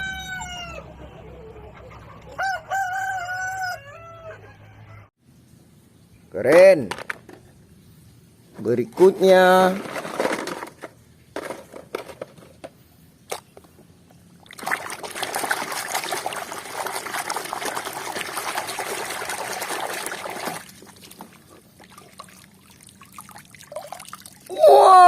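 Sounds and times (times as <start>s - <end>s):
water pouring over toy: 14.6s - 24.5s.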